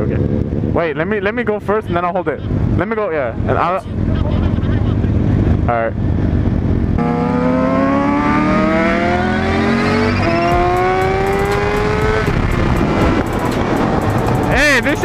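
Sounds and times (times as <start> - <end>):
motorcycle engine accelerating: 5.0 - 15.0
wind rush: 10.2 - 15.0.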